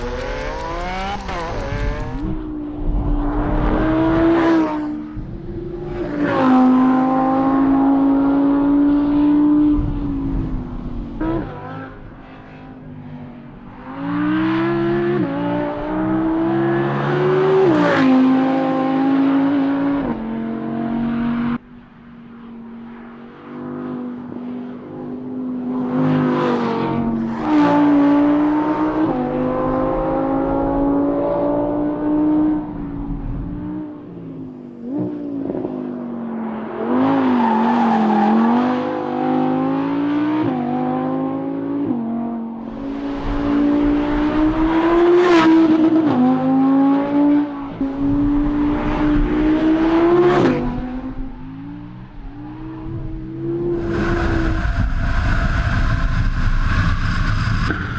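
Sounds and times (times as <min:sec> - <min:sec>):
car engine revving hard: 0:00.0 - 0:02.3.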